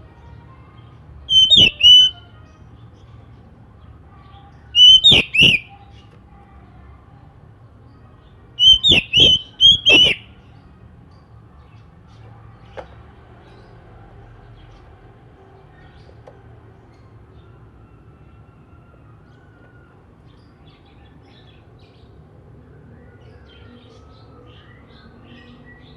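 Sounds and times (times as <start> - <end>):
bird whistling sharp notes: 1.3 - 2.2, 4.8 - 5.7, 8.6 - 10.3.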